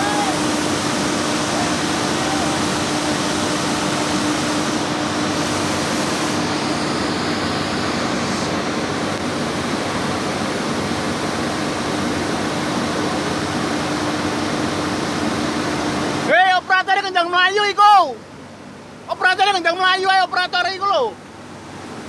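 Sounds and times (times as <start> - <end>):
flood water roaring: 0.0 - 16.7.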